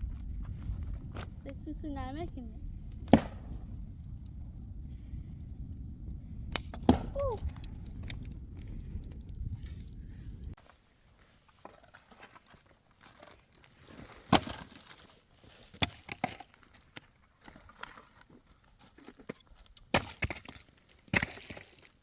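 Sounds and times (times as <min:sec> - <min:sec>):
sharp knocks and cracks: 0:03.0 - 0:03.6, 0:06.5 - 0:09.9, 0:14.2 - 0:18.3, 0:18.9 - 0:22.0.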